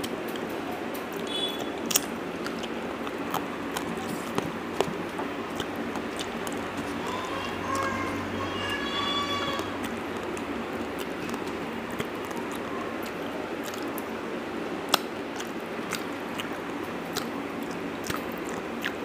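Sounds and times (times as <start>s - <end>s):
wet chewing and mouth clicks: 1.1s - 7.9s, 9.6s - 14.2s, 14.8s - 19.0s.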